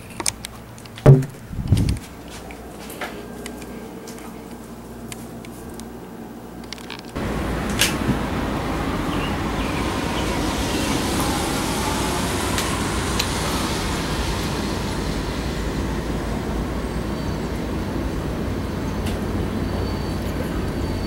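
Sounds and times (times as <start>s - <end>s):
low rumble of vehicle noise: 0.0s - 4.1s, 5.7s - 21.0s.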